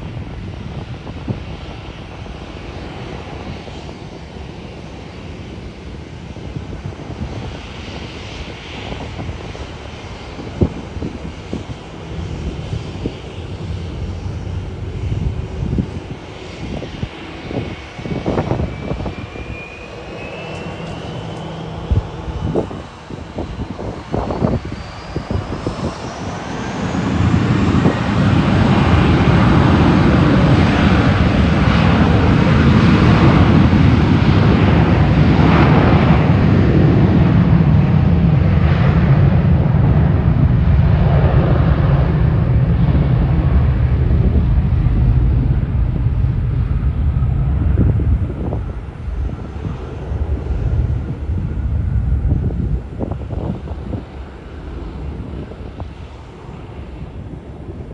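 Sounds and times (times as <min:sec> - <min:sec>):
jet engine rumble: 0:00.0 - 0:57.9
thin rising whine: 0:18.4 - 0:22.7.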